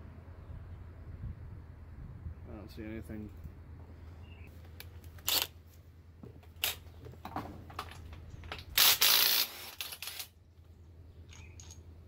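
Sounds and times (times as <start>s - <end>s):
ratchet wrench rattling: 8.8s - 10.3s, 11.3s - 11.8s.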